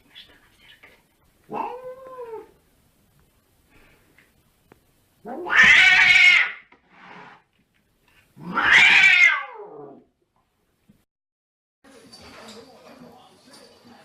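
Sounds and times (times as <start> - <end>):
cat yowling: 1.5 - 2.5, 5.3 - 6.7, 8.4 - 10.0.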